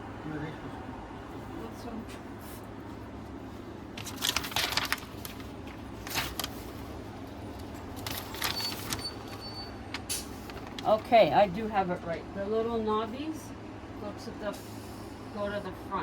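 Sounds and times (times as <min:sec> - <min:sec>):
fabric cover rustling: 0:02.4 - 0:11.3.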